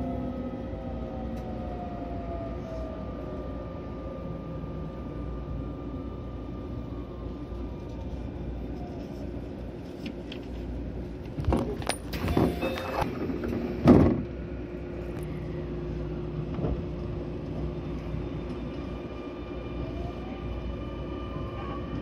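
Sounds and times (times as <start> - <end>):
train running rumble: 0.0 - 22.0
train knocks and clunks: 11.2 - 14.5, 16.4 - 18.9
train inverter falling tones: 11.8 - 14.3.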